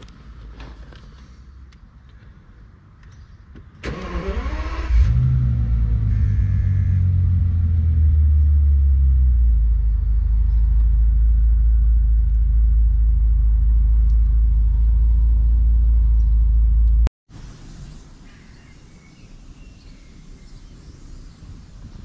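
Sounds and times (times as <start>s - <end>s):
car engine idling: 5.5s - 17.1s.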